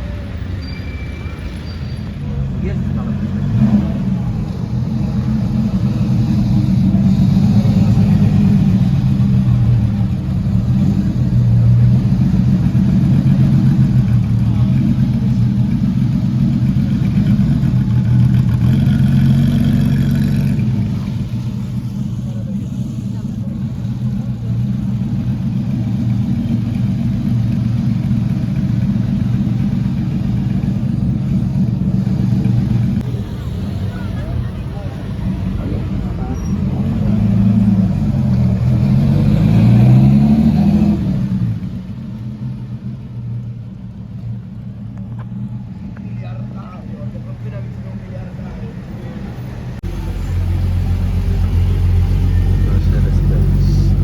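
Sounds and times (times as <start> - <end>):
car engine humming: 1.3 - 54.0.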